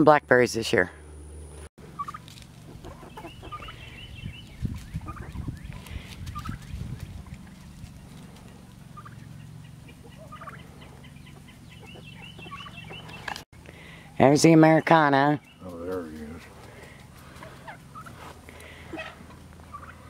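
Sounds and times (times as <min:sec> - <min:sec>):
chickens squawking: 0:01.9 - 0:14.2, 0:15.4 - 0:20.0
chirping trill: 0:02.8 - 0:08.1, 0:08.9 - 0:13.4.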